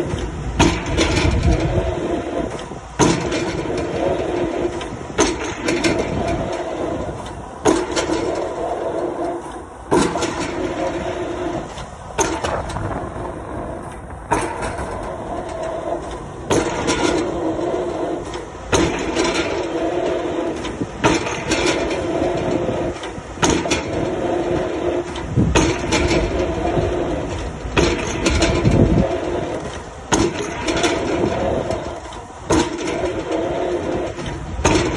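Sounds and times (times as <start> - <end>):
excavator engine running: 0.0 - 34.9.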